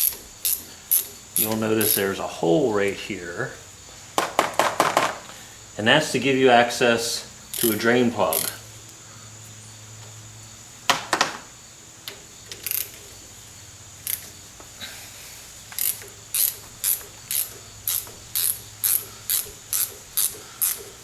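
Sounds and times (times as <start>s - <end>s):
ratchet wrench clicking: 0.0s - 2.2s, 7.5s - 8.7s, 12.5s - 13.1s, 14.0s - 14.3s, 15.7s - 21.0s.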